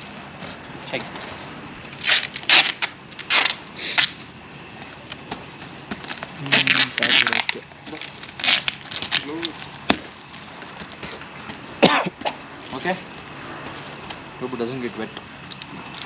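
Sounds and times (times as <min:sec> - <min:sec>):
plastic wrap crinkling and tearing: 0:06.0 - 0:09.7.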